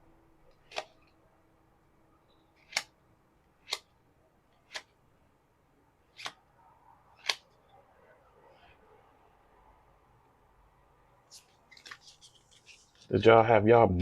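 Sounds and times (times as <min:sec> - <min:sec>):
trading cards snapping: 0:02.6 - 0:02.9, 0:04.7 - 0:04.9, 0:06.2 - 0:06.4.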